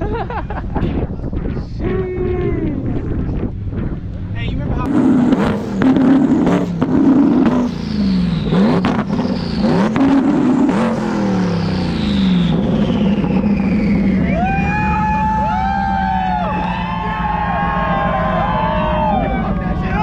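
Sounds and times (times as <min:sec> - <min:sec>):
high whine: 0:00.0 - 0:20.0
steady pitched tones: 0:00.0 - 0:20.0
car engine revving hard: 0:04.6 - 0:20.0.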